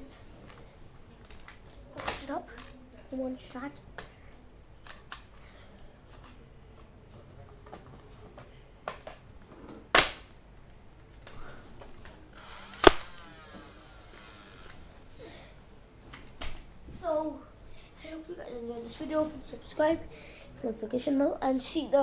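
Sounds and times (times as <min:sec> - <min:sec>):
toy blaster firing snaps: 0:10.0 - 0:10.3, 0:12.4 - 0:15.8.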